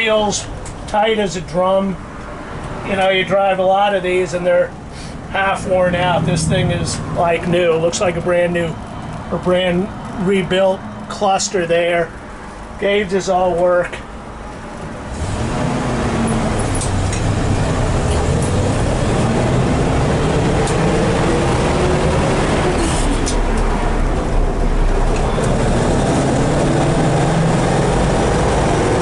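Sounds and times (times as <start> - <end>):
engine accelerating: 5.6 - 7.6, 15.1 - 29.0.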